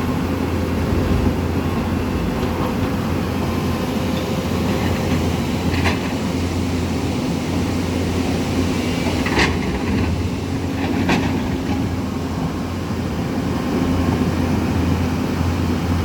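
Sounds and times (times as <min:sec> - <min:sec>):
river rushing roar: 0:00.0 - 0:05.8.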